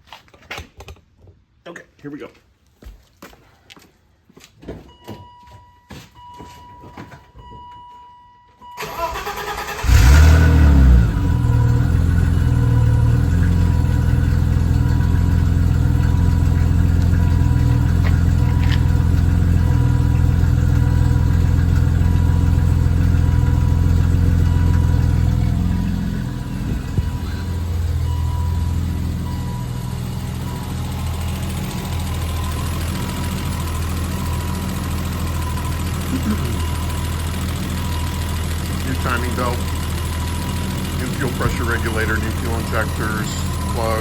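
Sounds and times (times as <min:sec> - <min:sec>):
car engine revving and idling: 0:08.8 - 0:44.0.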